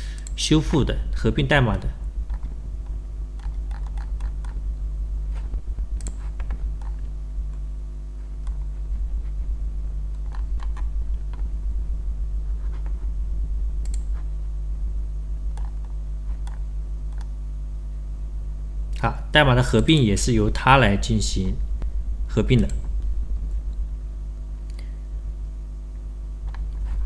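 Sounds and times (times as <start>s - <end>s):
low electrical hum: 0.0s - 27.0s
computer keyboard and mouse clicks: 2.3s - 4.6s, 5.4s - 7.6s, 10.1s - 11.5s, 13.8s - 14.3s, 15.5s - 17.3s, 26.4s - 26.9s.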